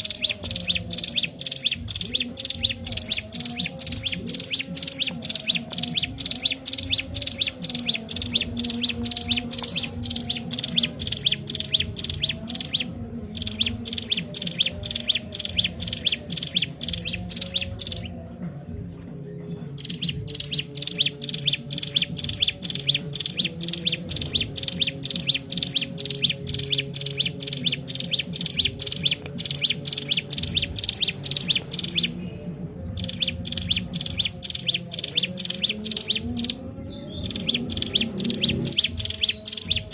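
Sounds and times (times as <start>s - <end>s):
bird chirping fast high notes: 33.0s - 39.9s.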